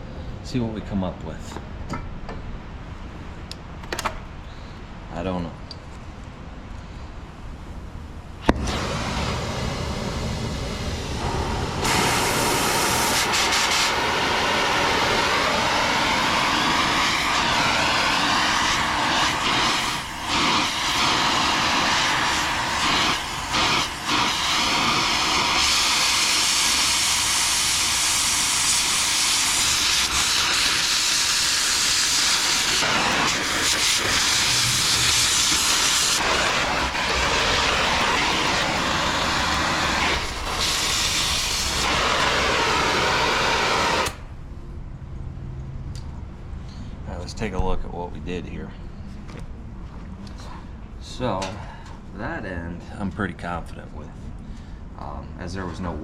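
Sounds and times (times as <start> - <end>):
cutting torch hissing: 8.4 - 44.3.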